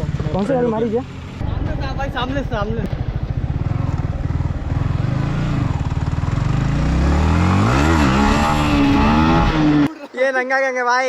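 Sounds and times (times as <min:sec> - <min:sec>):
motorcycle engine revving: 0:00.0 - 0:09.9.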